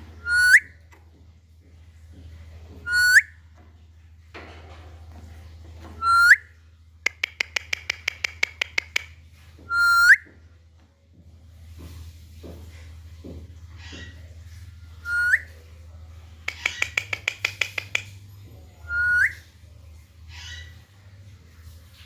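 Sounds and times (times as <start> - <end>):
parakeet whistling: 0.2 - 0.7, 2.9 - 3.3, 6.0 - 6.5, 9.7 - 10.2, 15.0 - 15.5, 18.9 - 19.4
parakeet clicky notes: 16.5 - 18.1.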